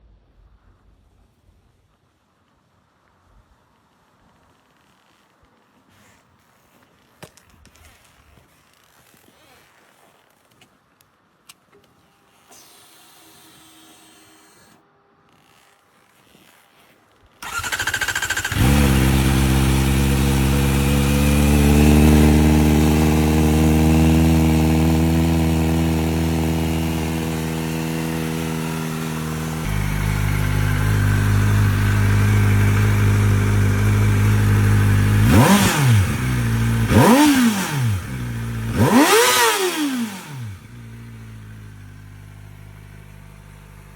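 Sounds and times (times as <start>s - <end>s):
motorcycle engine cranking: 17.4s - 22.2s
motorcycle engine idling: 17.4s - 43.9s
motorcycle engine revving: 17.4s - 43.9s.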